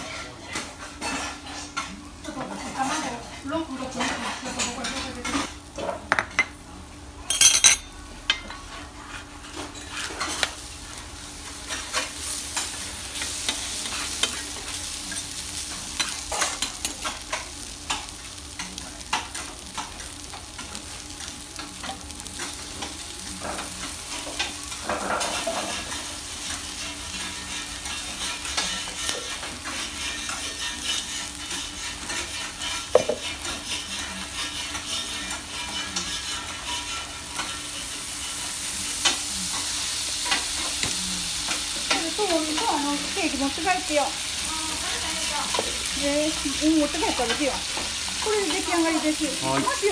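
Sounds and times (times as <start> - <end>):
noodles sizzling on a griddle: 0.0 - 49.9
metal spatulas scraping and tapping: 0.5 - 1.9, 21.2 - 38.0.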